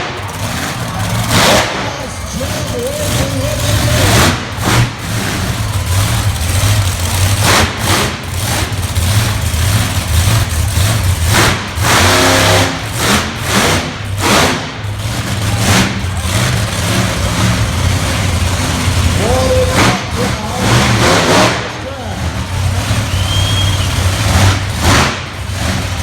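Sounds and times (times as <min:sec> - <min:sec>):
monster truck engine revving: 0:00.0 - 0:26.0.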